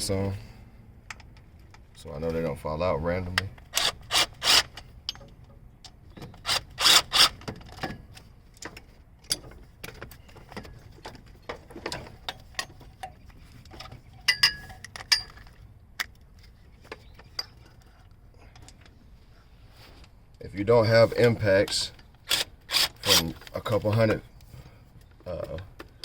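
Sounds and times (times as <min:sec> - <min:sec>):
metal bolts clicking and clinking: 0:07.3 - 0:19.0.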